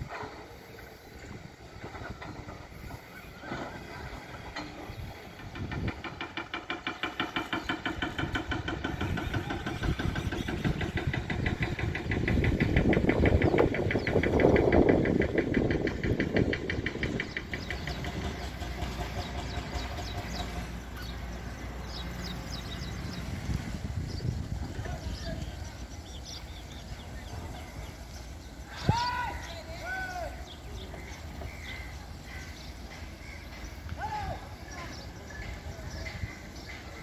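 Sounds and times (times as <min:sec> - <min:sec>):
engine running with thudding beat: 0:05.2 - 0:24.8.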